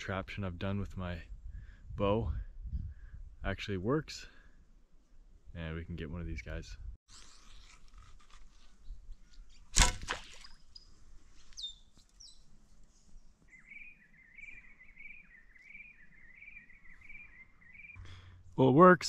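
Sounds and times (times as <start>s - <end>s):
bow string snap: 9.7s - 10.5s.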